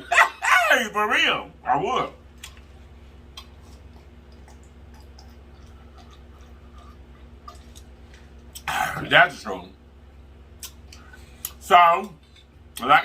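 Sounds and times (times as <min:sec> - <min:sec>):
steady low hum: 0:00.0 - 0:13.0
person chewing food: 0:02.3 - 0:08.7.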